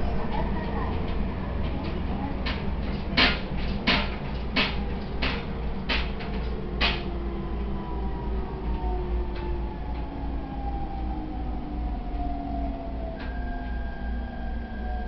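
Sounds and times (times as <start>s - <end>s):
wheels clicking over rail joints: 0.0s - 11.1s
electric train rumbling: 0.0s - 15.0s
faint whine falling in pitch: 7.1s - 15.0s.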